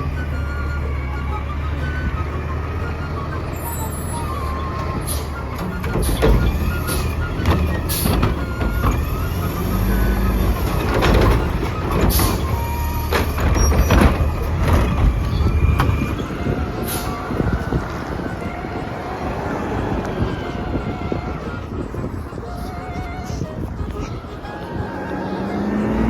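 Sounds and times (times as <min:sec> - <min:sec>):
garbage truck engine rumble: 0:00.0 - 0:26.0
clanks and knocks: 0:04.3 - 0:16.8.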